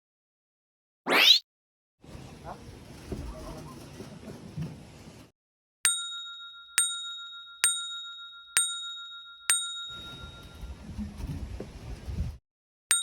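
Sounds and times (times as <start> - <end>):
bright bell dings: 5.9 - 10.7.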